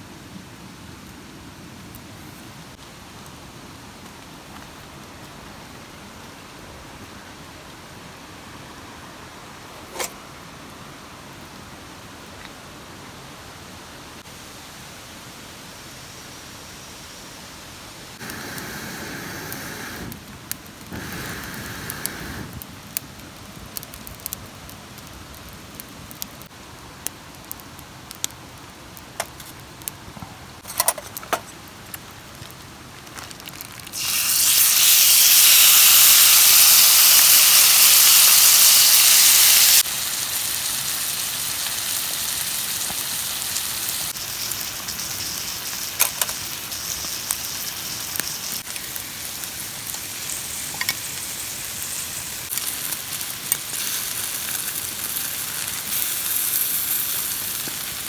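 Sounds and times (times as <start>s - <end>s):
steady rain: 0.0s - 30.6s, 31.6s - 58.0s
campfire crackles and clicks: 1.8s - 2.1s, 18.2s - 58.0s
food sizzling on a griddle: 18.2s - 20.1s, 20.9s - 22.5s, 33.4s - 58.0s.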